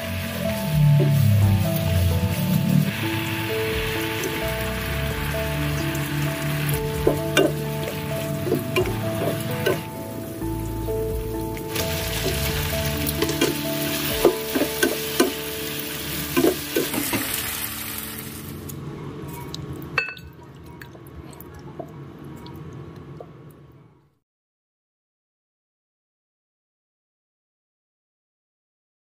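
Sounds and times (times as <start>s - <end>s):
food sizzling in a frying pan: 0.0s - 18.8s
background music: 0.0s - 18.9s.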